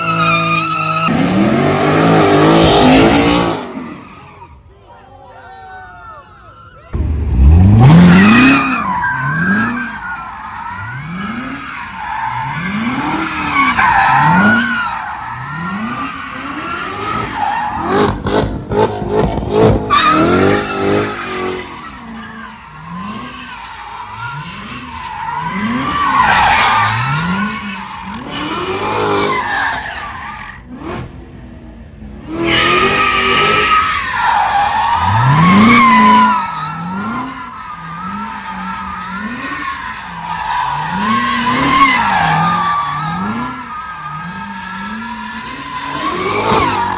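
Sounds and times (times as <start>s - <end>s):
car engine revving: 0.0s - 4.0s, 7.0s - 10.1s, 34.6s - 46.9s
tires squealing: 0.0s - 31.4s, 32.2s - 46.9s.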